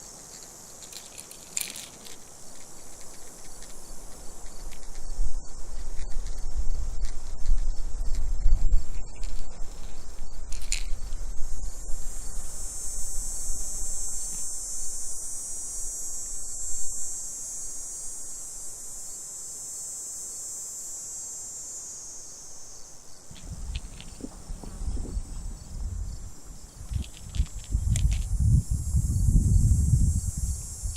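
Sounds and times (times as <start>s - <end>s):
insects buzzing: 0.0s - 30.9s
low rumbling on microphone: 23.3s - 30.9s.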